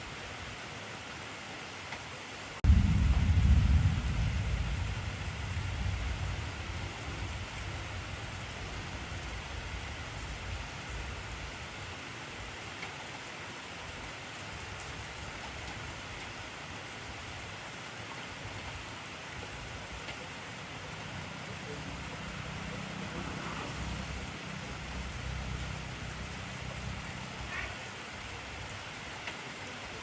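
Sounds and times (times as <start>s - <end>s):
heavy rain hissing: 2.5s - 30.0s
thunder rumbling: 2.6s - 11.4s.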